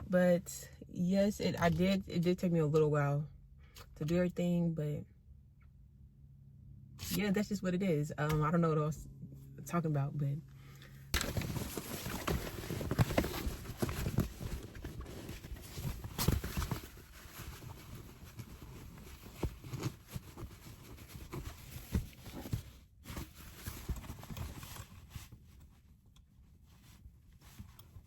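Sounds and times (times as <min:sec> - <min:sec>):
rustling handling sounds: 0:10.6 - 0:28.0.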